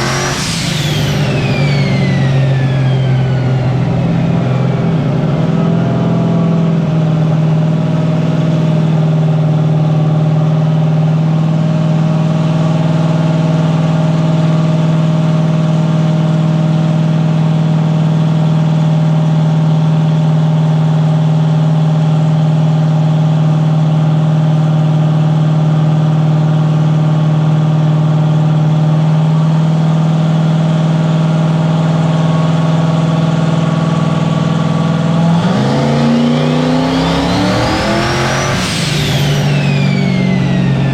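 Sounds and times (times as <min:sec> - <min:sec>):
engine idling and revving: 0:00.0 - 0:40.9.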